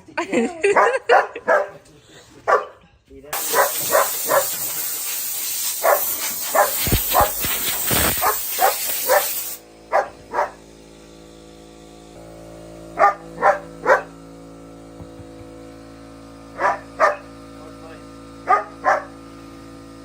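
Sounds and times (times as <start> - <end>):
dog barking: 0.7 - 1.8, 2.5 - 2.8, 3.4 - 4.7, 5.8 - 7.4, 8.2 - 10.6, 13.0 - 14.1, 16.6 - 17.3, 18.4 - 19.2
air compressor hissing: 3.4 - 20.0
machine hum: 9.5 - 20.0.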